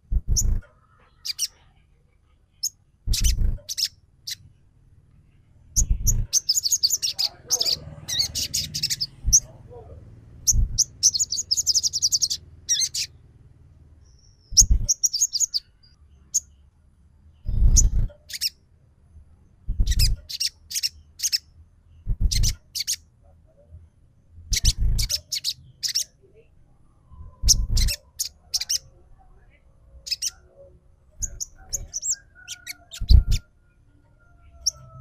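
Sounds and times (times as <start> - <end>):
bird twittering high chirps: 0.1 - 1.6, 2.5 - 4.5, 5.7 - 13.2, 14.0 - 16.6, 17.3 - 18.6, 19.6 - 23.1, 24.5 - 26.2, 27.2 - 29.0, 30.0 - 30.4, 31.2 - 33.5, 34.4 - 35.0.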